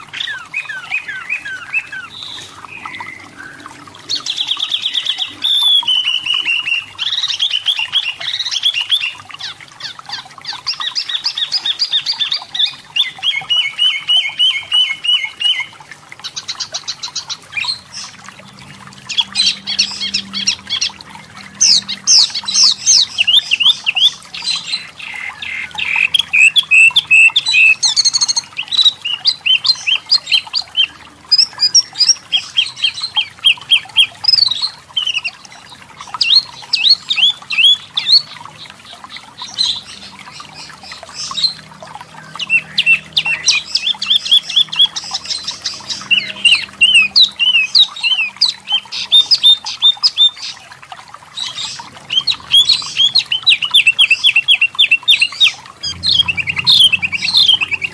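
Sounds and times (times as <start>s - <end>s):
bird singing high rising notes: 52.2s - 57.9s.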